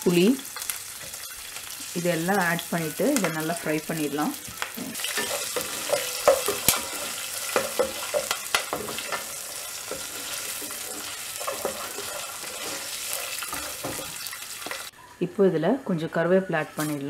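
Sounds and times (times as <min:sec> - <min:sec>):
food sizzling in hot oil: 0:00.0 - 0:15.1
wooden spatula scraping a pan: 0:04.8 - 0:14.9.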